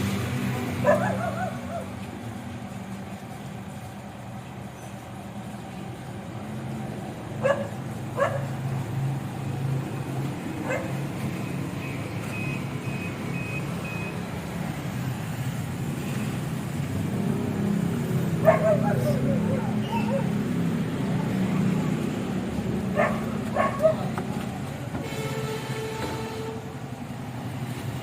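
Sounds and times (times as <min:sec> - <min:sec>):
dog barking: 0:00.8 - 0:01.9, 0:07.4 - 0:08.6, 0:10.6 - 0:11.0, 0:18.4 - 0:20.4, 0:22.9 - 0:24.1
short high beeps: 0:11.8 - 0:14.2.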